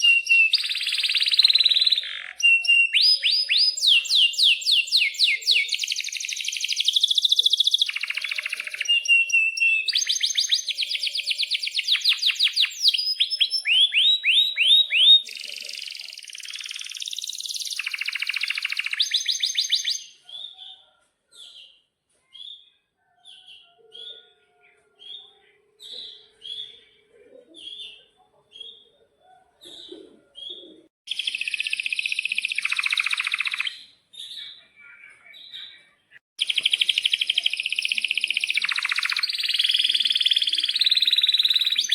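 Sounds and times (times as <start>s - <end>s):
canary singing: 0.0s - 21.8s, 30.5s - 35.8s, 36.4s - 41.9s.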